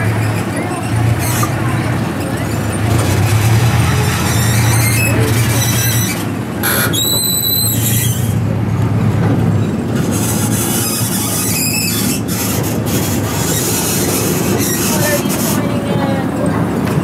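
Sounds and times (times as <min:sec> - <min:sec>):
small train rumbling on track: 0:00.0 - 0:17.0
train wheels squealing: 0:03.9 - 0:08.4, 0:10.1 - 0:15.6.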